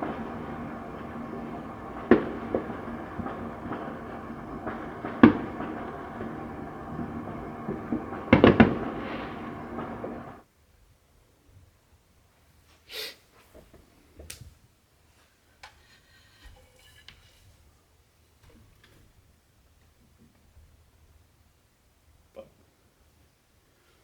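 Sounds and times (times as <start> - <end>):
fireworks bangs: 0.0 - 10.4
steady background rumble: 0.0 - 10.4.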